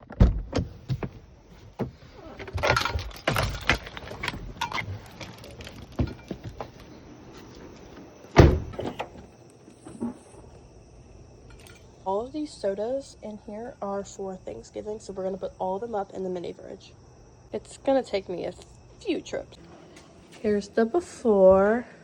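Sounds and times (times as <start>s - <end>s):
objects clattering and knocking: 1.8s - 7.5s
heavy thump: 8.4s - 9.0s.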